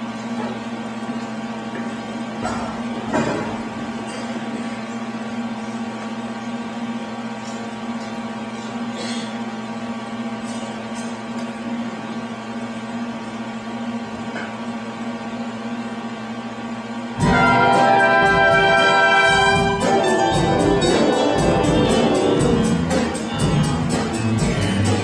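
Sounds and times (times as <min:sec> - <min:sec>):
sustained brass chord: 0:17.2 - 0:22.9
band held low tone: 0:17.2 - 0:25.0
up-tempo band music: 0:17.2 - 0:25.0.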